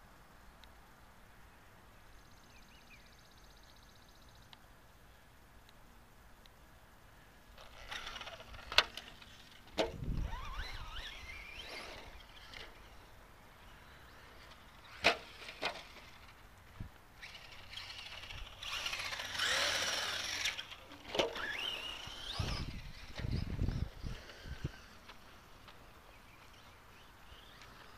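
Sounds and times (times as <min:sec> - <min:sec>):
rc truck motor whine: 0:07.5 - 0:25.6, 0:26.2 - 0:27.9.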